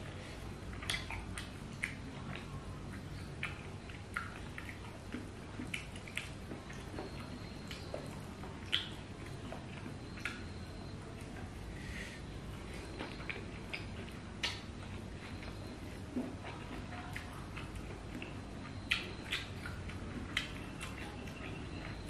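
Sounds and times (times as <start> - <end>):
low steady hum: 0.0 - 22.0
wet chewing and lip-smacking: 0.0 - 22.0.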